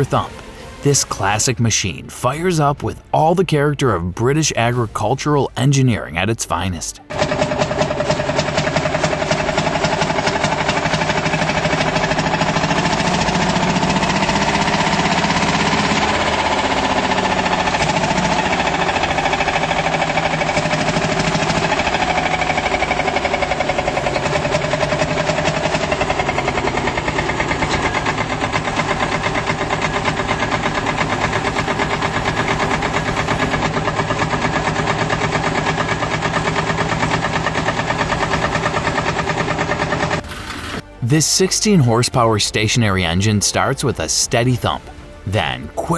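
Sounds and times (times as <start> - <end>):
diesel tractor engine thumping: 7.1 - 40.3.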